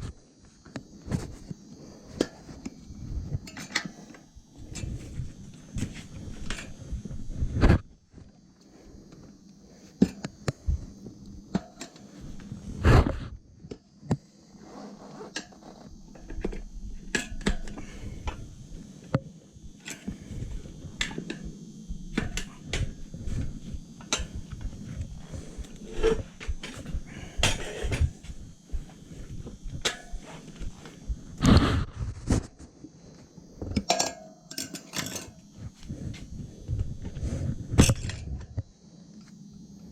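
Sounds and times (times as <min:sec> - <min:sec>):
hand tools clicking and knocking: 0:33.8 - 0:35.4.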